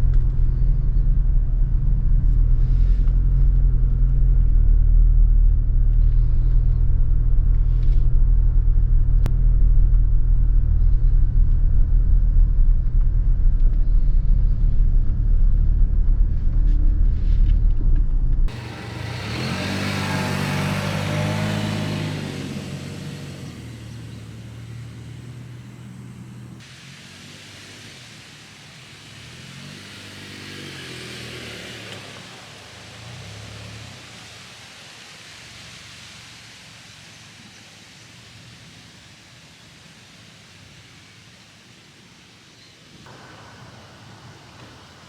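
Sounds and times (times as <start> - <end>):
car interior road rumble: 0.0 - 26.6
vehicle engine passing by: 18.5 - 35.3.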